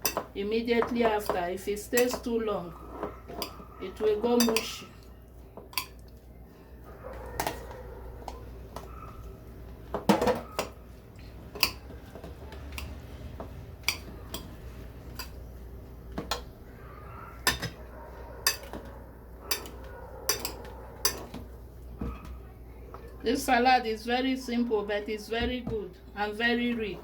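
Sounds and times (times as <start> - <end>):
metal utensils clinking on a dish: 0.0 - 4.9, 5.6 - 6.0, 7.3 - 8.9, 11.6 - 13.0, 13.8 - 15.4, 17.4 - 17.8, 18.4 - 21.5.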